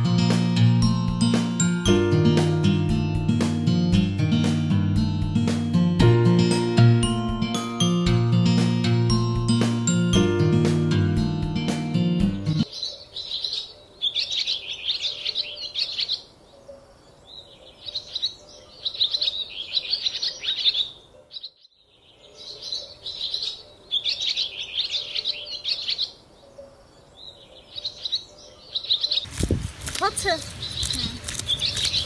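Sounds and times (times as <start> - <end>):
small birds chirping: 12.5 - 32.0.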